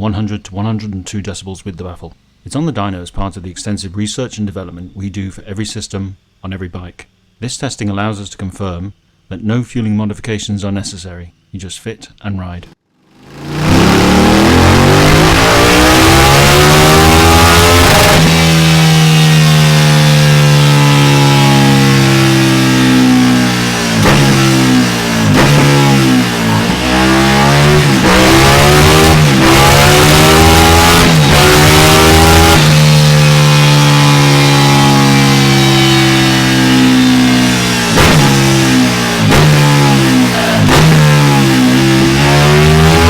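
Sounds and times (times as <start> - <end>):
motorcycle engine revving on dyno: 13.0 - 43.0.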